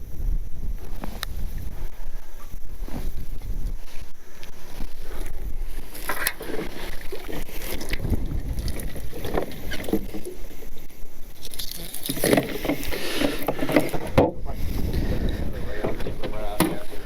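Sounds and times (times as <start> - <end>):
water noise: 0.0 - 17.0
wind buffeting microphone: 0.0 - 17.0
knocks and clatter on boat: 6.1 - 10.4, 12.0 - 17.0.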